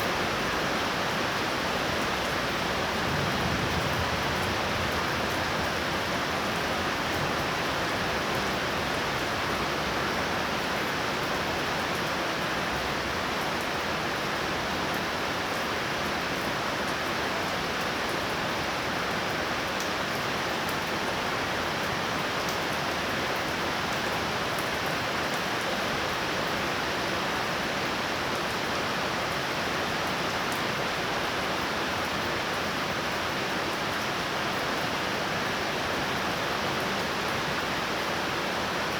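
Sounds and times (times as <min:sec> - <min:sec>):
torrential rain falling: 0:00.0 - 0:38.9.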